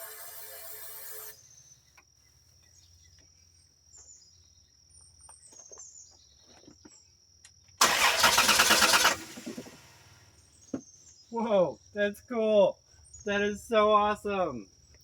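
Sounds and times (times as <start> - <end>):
engine firing roughly: 7.8 - 10.4.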